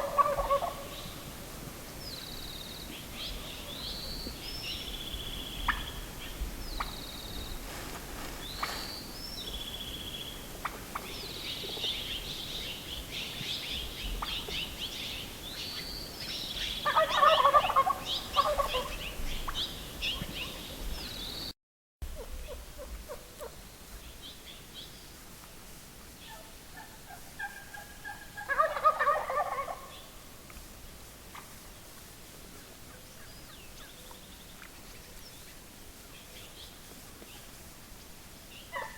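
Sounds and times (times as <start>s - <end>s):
turkey gobbling: 0.0s - 1.1s, 5.6s - 6.0s, 16.8s - 20.3s, 26.3s - 30.1s
songbirds chirping: 0.0s - 21.5s, 22.2s - 30.6s, 31.3s - 38.9s.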